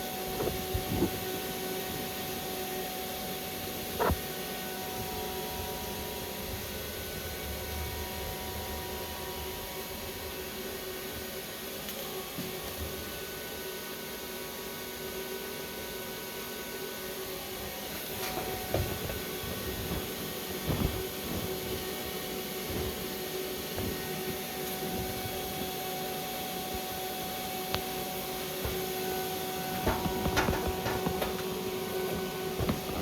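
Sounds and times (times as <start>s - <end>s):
welding hiss and hum: 0.0s - 33.0s
sharp welding crackles: 27.7s - 33.0s.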